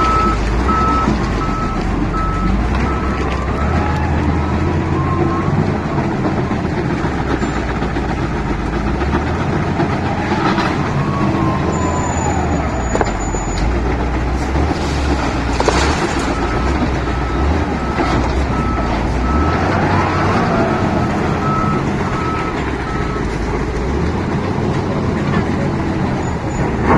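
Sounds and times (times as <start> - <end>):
reversing alarm beeping: 0.0 - 5.9, 21.3 - 23.3
heavy diesel engine working: 0.0 - 26.9.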